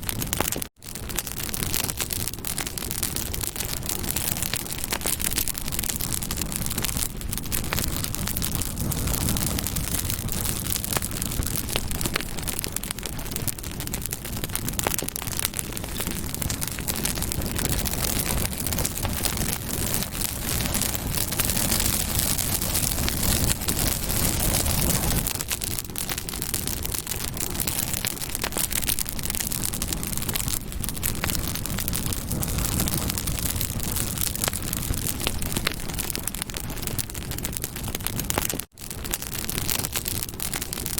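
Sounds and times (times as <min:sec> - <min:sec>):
campfire crackling and popping: 0:00.0 - 0:40.9
low rush of flame: 0:00.0 - 0:40.9.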